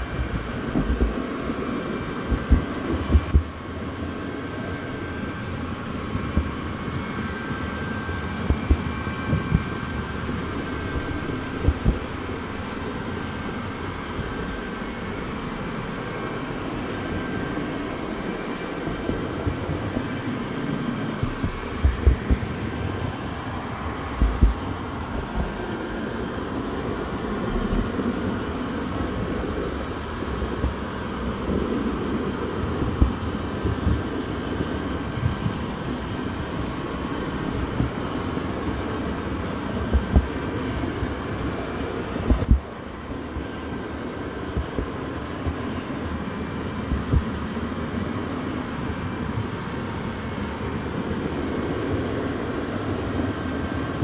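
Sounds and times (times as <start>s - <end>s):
low thumps: 0.0s - 1.2s, 2.2s - 3.5s, 10.6s - 12.2s, 21.2s - 22.6s, 24.1s - 25.7s, 42.3s - 42.8s
train rumble and rattle: 0.0s - 54.0s.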